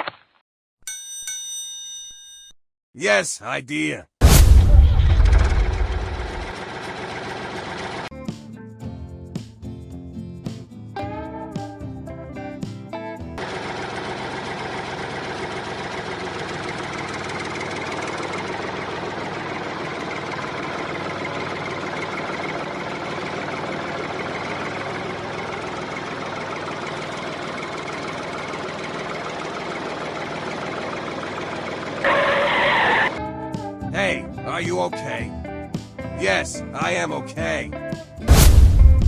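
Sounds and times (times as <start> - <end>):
sudden loud sound: 4.2 - 6.5, 38.3 - 39.0
small tractor engine idling: 6.6 - 8.1, 13.4 - 32.1.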